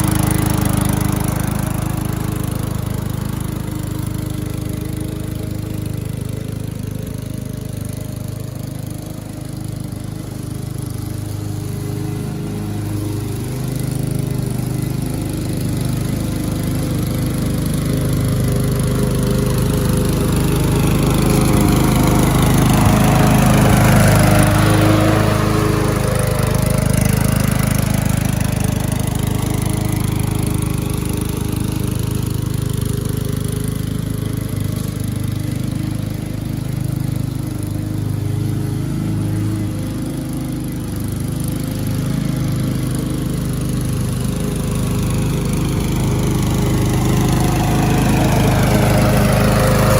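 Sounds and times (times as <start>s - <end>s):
lawn mower engine running: 0.0s - 49.9s.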